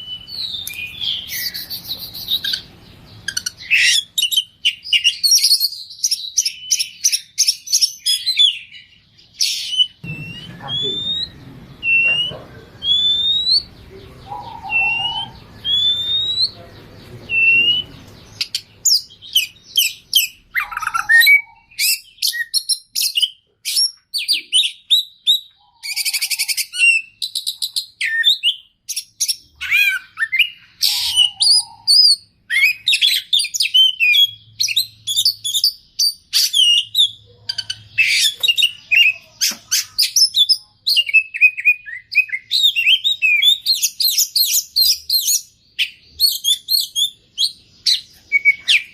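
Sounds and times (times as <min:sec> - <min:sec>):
songbird whistling and trilling: 0:00.0 - 0:48.9.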